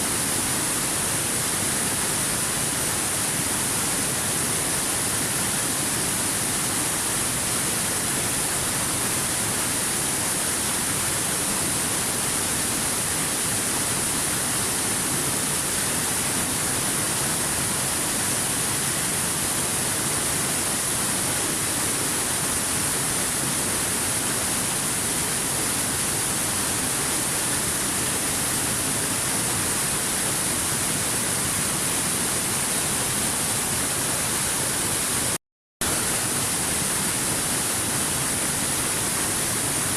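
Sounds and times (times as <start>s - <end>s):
waterfall rushing: 15.8s - 39.9s.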